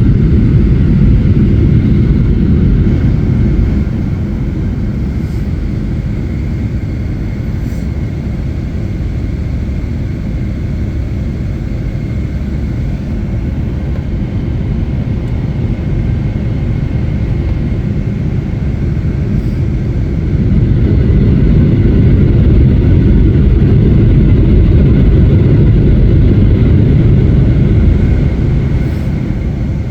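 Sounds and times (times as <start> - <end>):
jet engines at takeoff: 0.0 - 29.9.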